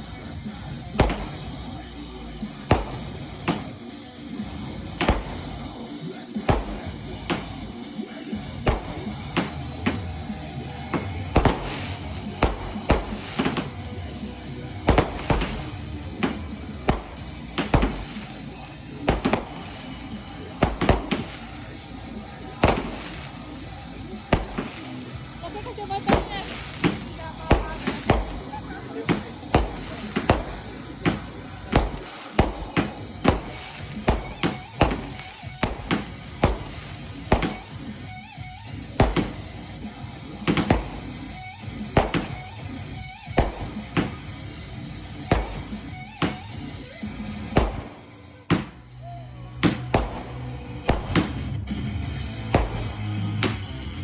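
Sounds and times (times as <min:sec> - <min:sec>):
hissing crackle: 0:00.0 - 0:38.2
fireworks bangs: 0:00.0 - 0:54.0
music playing: 0:00.0 - 0:54.0.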